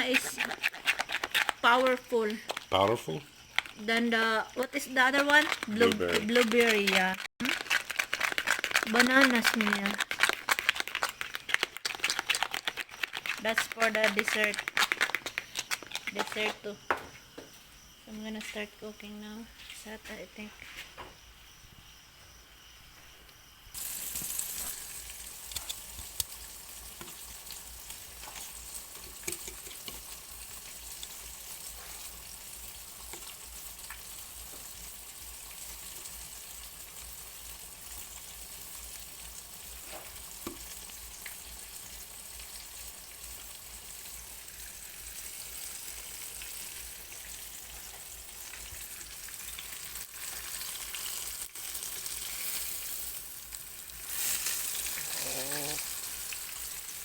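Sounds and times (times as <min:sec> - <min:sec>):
meat sizzling in oil: 0:00.0 - 0:16.4, 0:23.7 - 0:57.0
utensils clicking and knocking: 0:29.0 - 0:30.0.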